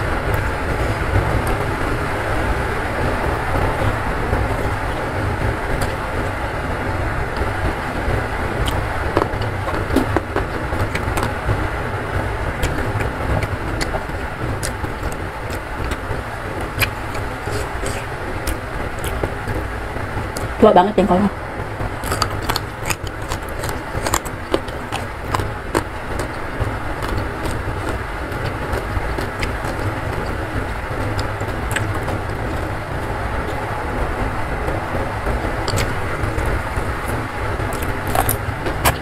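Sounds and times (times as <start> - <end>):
chewing crunchy leafy greens: 12.5 - 21.2, 21.8 - 39.0.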